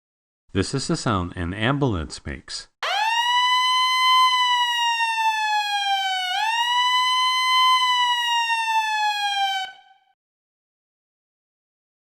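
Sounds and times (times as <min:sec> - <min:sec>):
ambulance siren wailing: 0:02.8 - 0:10.2.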